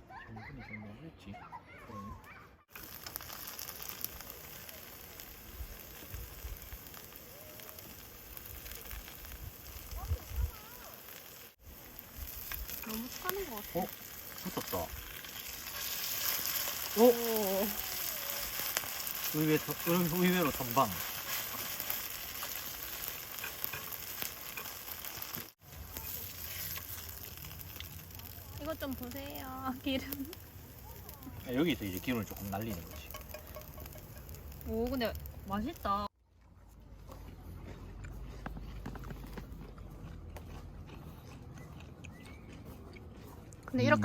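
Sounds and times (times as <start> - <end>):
oil sizzling and crackling in a pan: 2.7 - 36.1.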